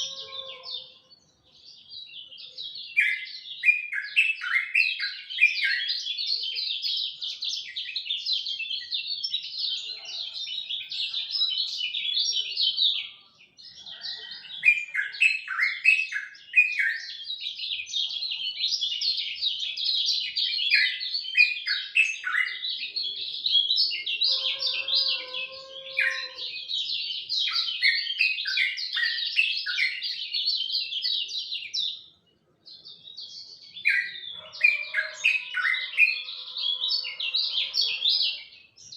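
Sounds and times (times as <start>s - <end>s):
songbird twittering song: 0.0s - 38.9s.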